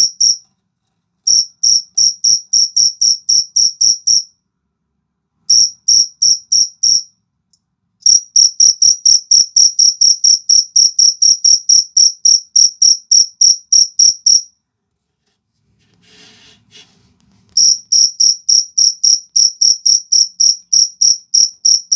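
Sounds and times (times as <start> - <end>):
cricket chirping: 0.0 - 0.4, 1.3 - 4.4, 5.5 - 7.2, 8.0 - 14.6, 17.6 - 21.9.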